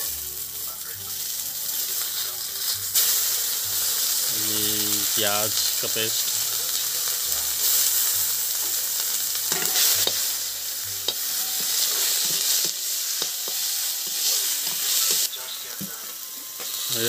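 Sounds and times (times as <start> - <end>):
onion paste sizzling in oil: 0.0 - 17.0
metal spoon scraping a pan: 9.4 - 10.3, 11.1 - 15.3.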